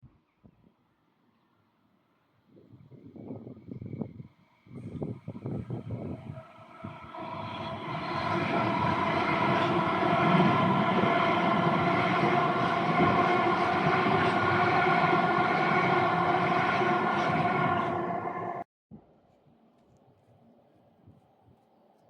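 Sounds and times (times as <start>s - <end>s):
train passing close by: 4.5s - 18.7s.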